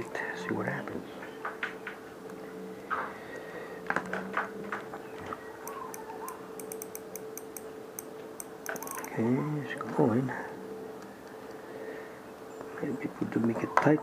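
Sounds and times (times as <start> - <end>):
faint steady hum: 0.0 - 14.0
reel cranking ticks: 5.6 - 9.1
fishing reel clicks: 5.7 - 9.2.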